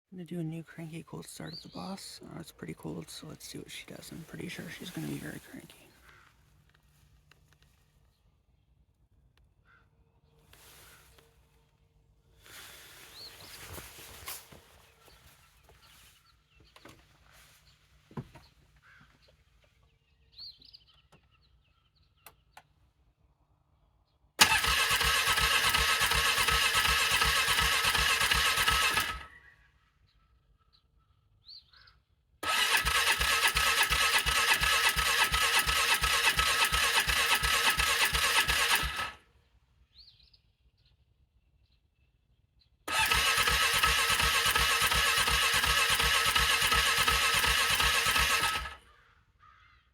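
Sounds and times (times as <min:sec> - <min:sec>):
engine starter cranking: 0:24.4 - 0:29.4, 0:32.4 - 0:39.2, 0:42.9 - 0:48.9.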